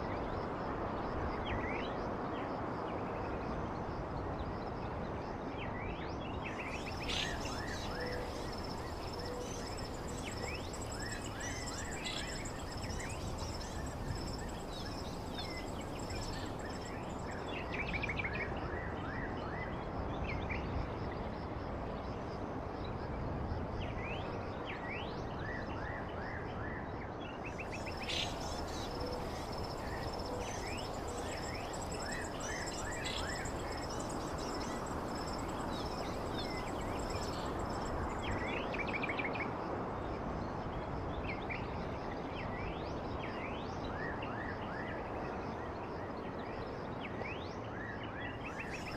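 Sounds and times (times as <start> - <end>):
small birds chirping: 6.5 - 17.7, 27.6 - 38.7
background hiss: 6.6 - 18.0, 27.6 - 38.7.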